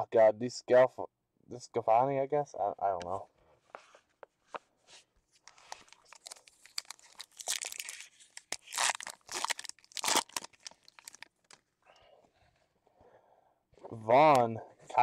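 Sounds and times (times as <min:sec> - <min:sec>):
foil wrapper tearing and crinkling: 0:05.5 - 0:11.6.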